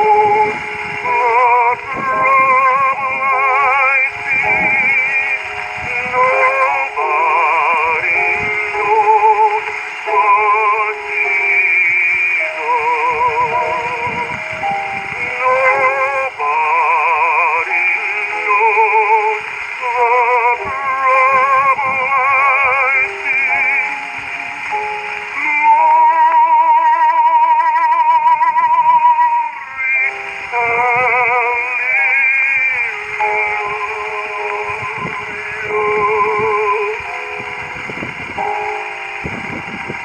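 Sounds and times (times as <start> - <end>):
baritone singing with vibrato: 0.0 - 40.0.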